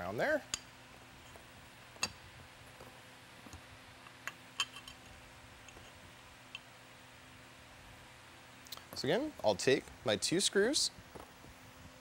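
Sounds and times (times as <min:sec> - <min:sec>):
metal parts clicking and clinking: 0:04.6 - 0:05.1.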